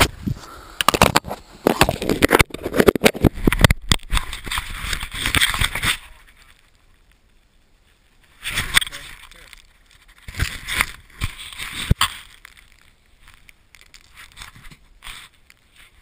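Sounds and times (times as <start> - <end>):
camera handling noise: 0.8 - 6.1.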